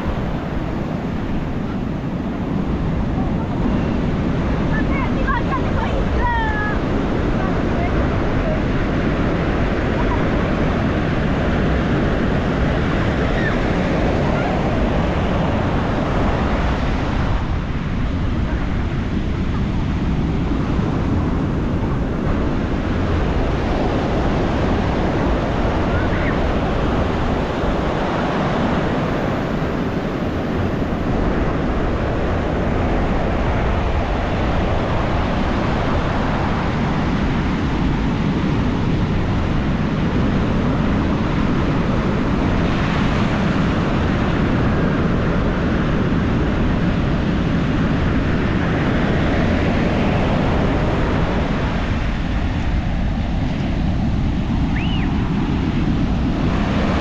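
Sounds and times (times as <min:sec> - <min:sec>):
ocean waves breaking on beach: 0:00.0 - 0:57.0
wind buffeting microphone: 0:00.0 - 0:57.0.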